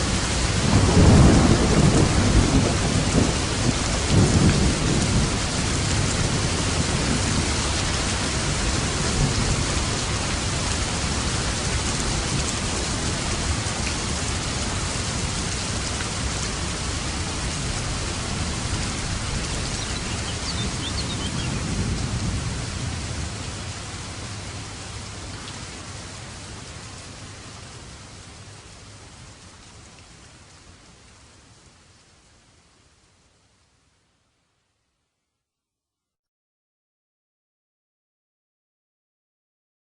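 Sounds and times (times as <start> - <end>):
heavy rain: 0.0 - 34.7
thunder rolling: 0.6 - 10.2.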